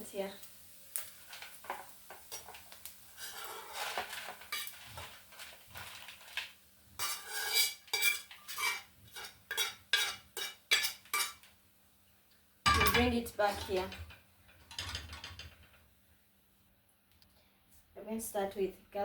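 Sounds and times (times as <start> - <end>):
spoon scraping a pot: 3.2 - 5.2, 7.0 - 11.4.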